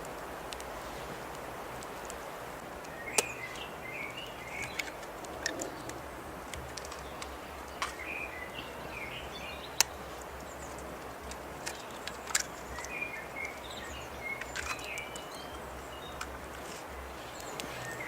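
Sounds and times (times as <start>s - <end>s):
birds chirping: 0.0s - 18.0s
outdoor background noise: 0.0s - 18.0s
sharp clicks: 9.7s - 18.0s.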